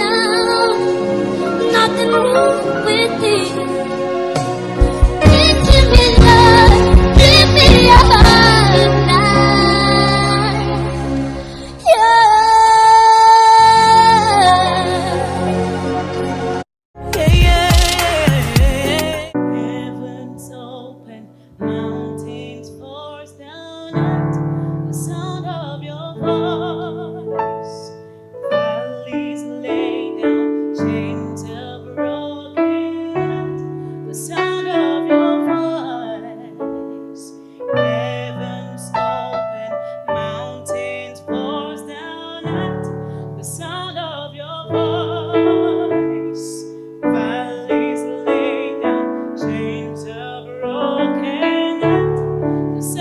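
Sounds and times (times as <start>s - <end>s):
piano chords: 0.0s - 53.0s
person singing long notes: 17.1s - 20.4s.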